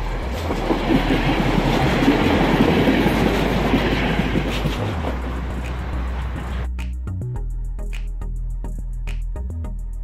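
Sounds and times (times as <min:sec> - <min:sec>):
train wheels clattering on rails: 0:00.0 - 0:06.6.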